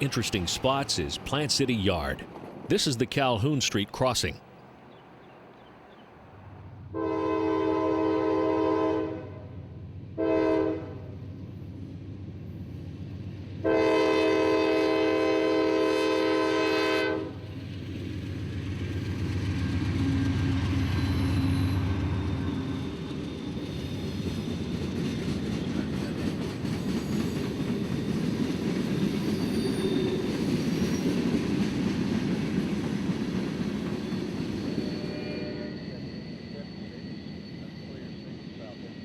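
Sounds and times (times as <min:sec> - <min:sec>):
train horn: 0:06.9 - 0:09.6, 0:10.2 - 0:11.1, 0:13.6 - 0:17.4, 0:34.9 - 0:35.9.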